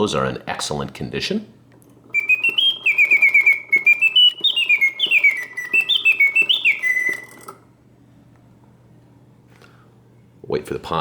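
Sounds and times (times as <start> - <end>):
clockwork clicks: 2.1 - 7.6
mechanical bird whistling: 2.1 - 7.7.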